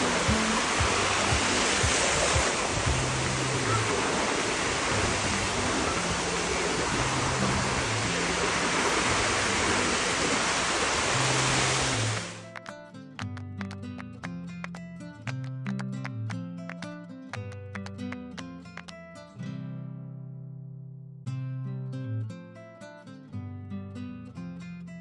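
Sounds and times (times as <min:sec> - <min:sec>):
background music with low bass: 0:00.0 - 0:06.2
steady rushing noise: 0:00.0 - 0:12.4
plucked guitar notes: 0:00.0 - 0:25.0.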